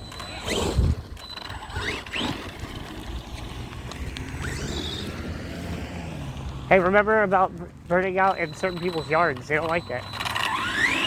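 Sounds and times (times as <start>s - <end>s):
electric motor whining in revs: 0.0s - 6.9s, 8.3s - 11.0s
drivetrain rumble: 0.0s - 11.0s
wind on microphone: 0.6s - 6.0s.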